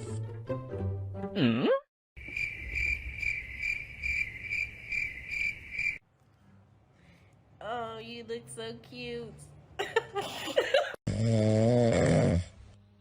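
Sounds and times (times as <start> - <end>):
crickets chirping: 2.2 - 6.0.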